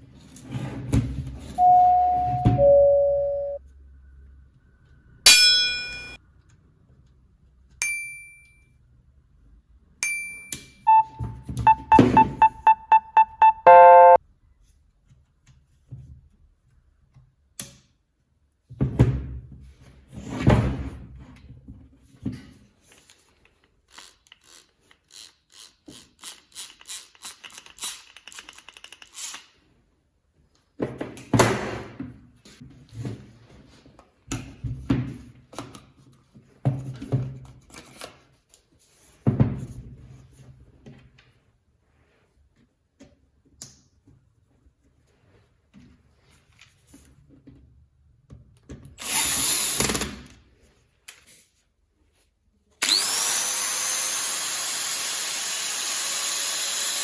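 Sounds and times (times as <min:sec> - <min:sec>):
short pitched tone: 0:01.6 - 0:03.6, 0:10.9 - 0:14.2.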